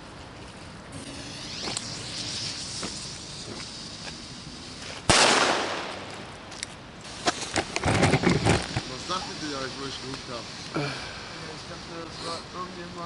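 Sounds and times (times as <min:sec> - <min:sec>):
faint hiss: 0:00.0 - 0:13.0
firecracker bang: 0:05.1 - 0:06.2.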